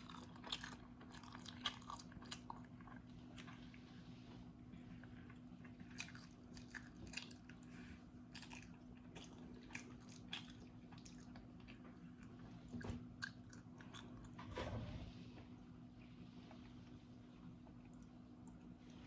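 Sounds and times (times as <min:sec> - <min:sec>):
mouth chewing and smacking: 0:00.0 - 0:03.8, 0:04.8 - 0:14.4
low steady hum: 0:00.0 - 0:19.0.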